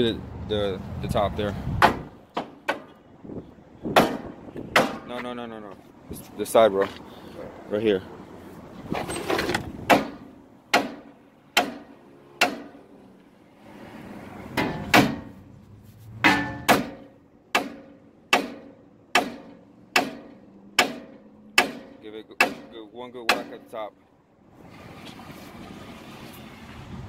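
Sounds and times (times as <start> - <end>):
sledgehammer striking steel: 3.9 - 5.1, 9.9 - 12.8, 14.5 - 15.4, 16.2 - 23.7.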